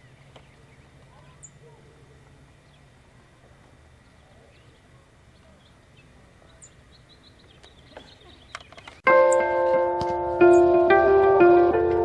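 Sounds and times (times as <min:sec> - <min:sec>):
songbirds chirping: 0:00.0 - 0:11.7
background piano music: 0:09.0 - 0:12.0.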